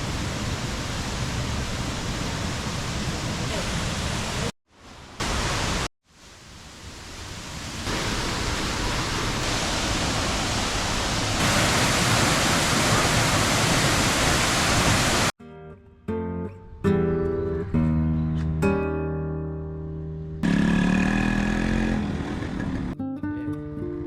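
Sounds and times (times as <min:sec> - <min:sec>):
waterfall rushing: 0:00.0 - 0:15.3
plucked acoustic guitar music: 0:15.4 - 0:20.4, 0:23.0 - 0:24.0.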